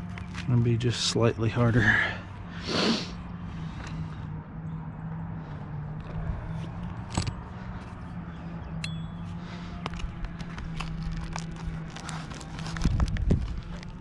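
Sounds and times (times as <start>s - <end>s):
steady low hum: 0.0s - 14.0s
metallic ping: 8.8s - 9.3s.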